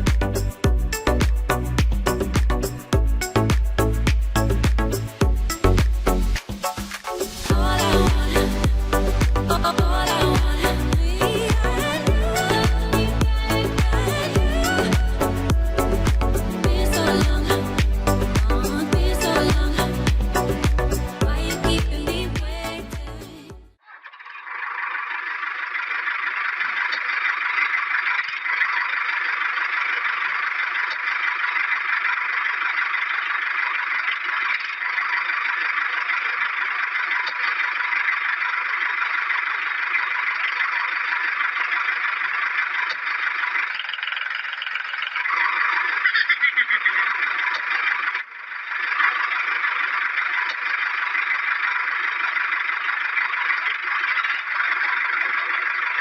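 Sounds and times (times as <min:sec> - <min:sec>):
toy motor whirring: 0:24.6 - 0:56.0.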